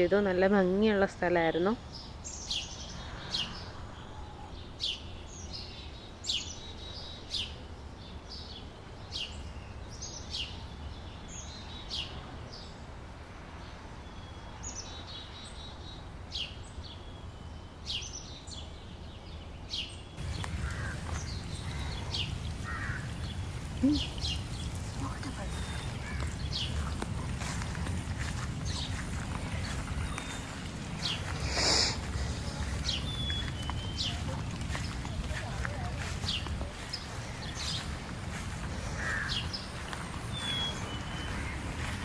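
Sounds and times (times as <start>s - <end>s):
bird chirping: 14.2s - 42.0s
low background hum: 20.2s - 42.0s.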